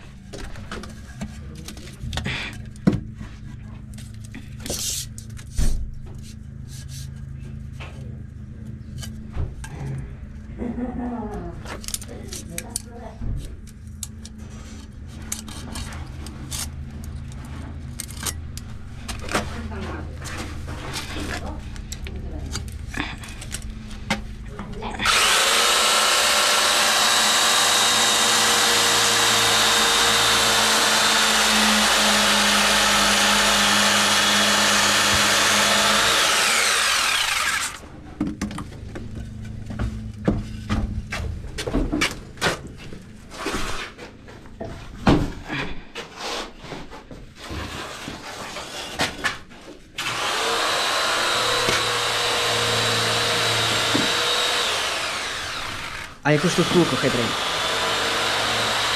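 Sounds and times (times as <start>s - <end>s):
power tool motor humming: 25.0s - 37.8s, 50.0s - 58.9s.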